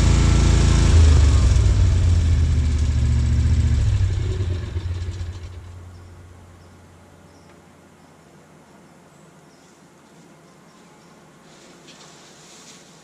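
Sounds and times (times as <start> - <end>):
riding mower engine: 0.0 - 6.6.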